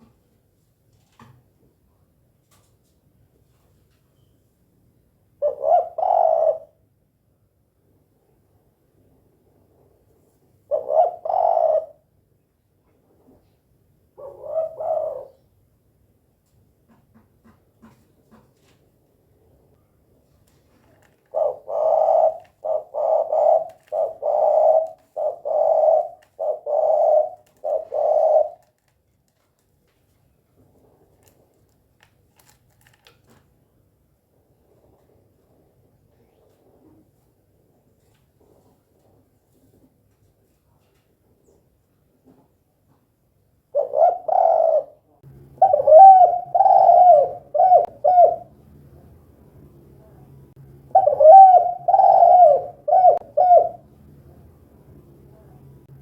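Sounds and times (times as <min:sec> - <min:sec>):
dove cooing: 0:05.4 - 0:06.8, 0:10.7 - 0:12.1, 0:14.2 - 0:15.5, 0:20.8 - 0:28.8, 0:43.7 - 0:48.6, 0:50.9 - 0:53.9.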